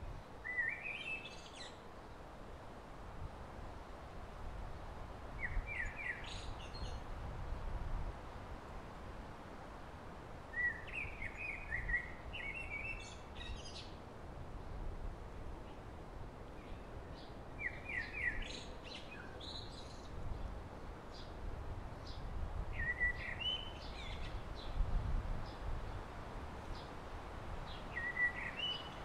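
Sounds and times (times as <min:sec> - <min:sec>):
songbird singing: 0:00.1 - 0:02.2, 0:05.3 - 0:07.1, 0:10.5 - 0:14.0, 0:16.5 - 0:27.0, 0:27.6 - 0:29.0.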